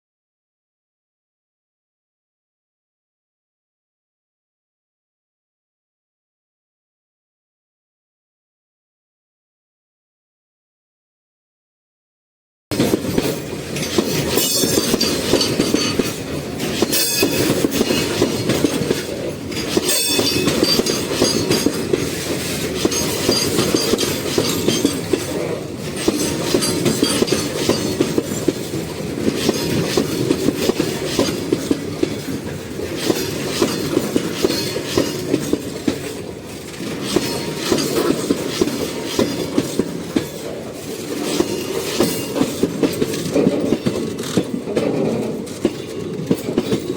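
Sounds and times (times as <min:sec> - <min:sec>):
freight train rumble: 0:12.7 - 0:46.9
wheels clicking over rail joints: 0:12.7 - 0:46.9.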